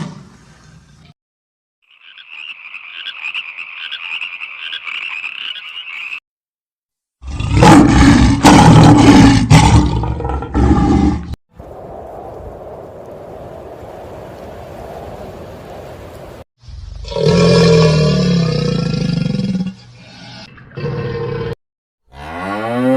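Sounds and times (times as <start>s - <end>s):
low animal roaring: 7.2s - 11.4s, 16.9s - 22.9s.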